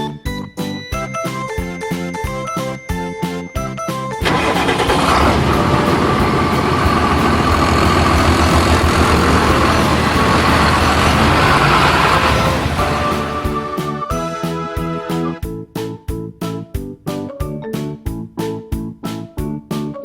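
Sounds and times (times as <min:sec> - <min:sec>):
light children's music: 0:00.0 - 0:20.0
truck engine rumbling: 0:04.2 - 0:15.4.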